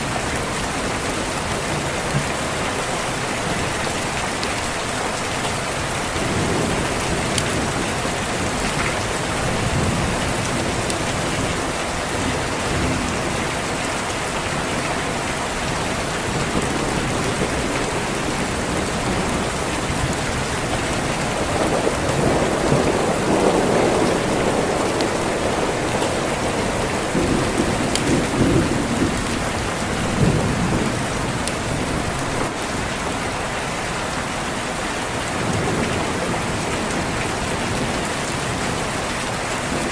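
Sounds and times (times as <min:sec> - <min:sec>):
steady rain falling: 0:00.0 - 0:39.9
rolling thunder: 0:15.7 - 0:32.6.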